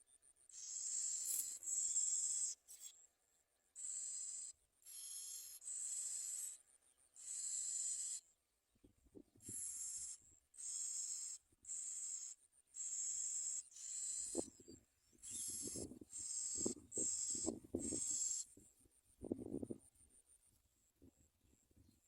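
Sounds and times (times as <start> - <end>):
nestlings begging calls: 0.5 - 2.9, 3.8 - 6.6, 7.2 - 8.2, 9.5 - 14.6, 15.2 - 18.5.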